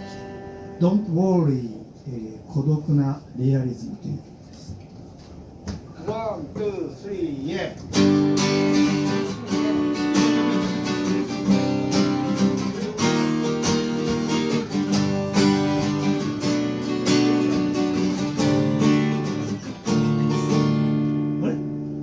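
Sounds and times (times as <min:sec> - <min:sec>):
acoustic guitar strumming: 0:00.0 - 0:01.3, 0:07.8 - 0:22.0.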